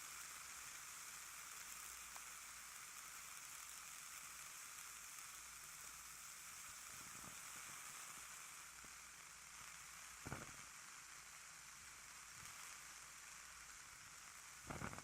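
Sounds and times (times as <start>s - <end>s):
ear candles hissing: 0.0s - 15.0s.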